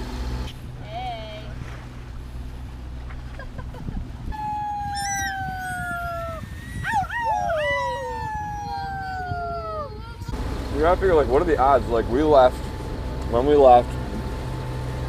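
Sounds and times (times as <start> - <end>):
long falling howls: 4.3 - 10.3
short yelps: 4.9 - 8.2.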